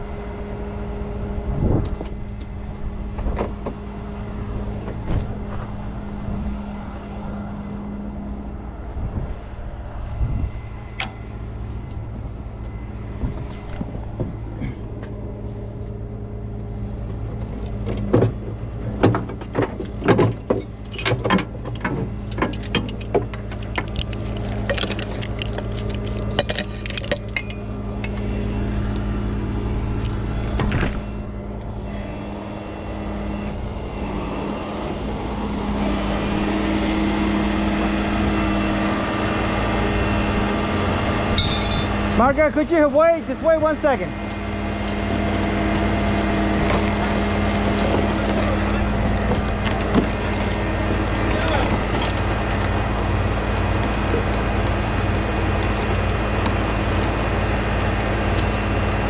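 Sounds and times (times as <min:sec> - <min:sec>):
truck engine idling: 0:00.0 - 0:59.0
metal chains clanking: 0:19.7 - 0:28.8, 0:41.4 - 0:42.0, 0:44.8 - 0:57.3.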